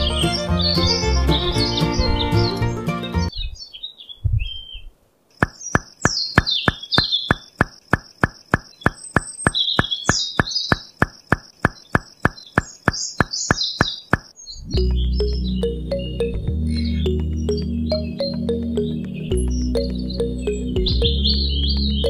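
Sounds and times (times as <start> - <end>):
birds chirping: 0.0 - 22.0
sharp evenly spaced clicks: 5.3 - 22.0.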